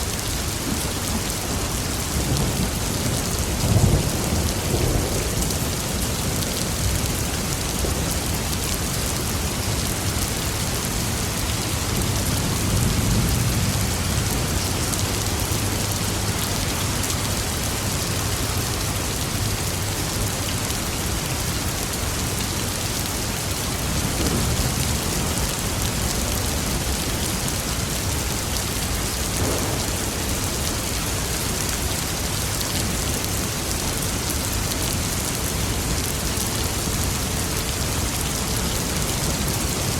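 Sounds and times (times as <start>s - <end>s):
steady rain falling: 0.0s - 39.9s
thunder rumbling: 23.8s - 28.1s, 29.0s - 32.2s.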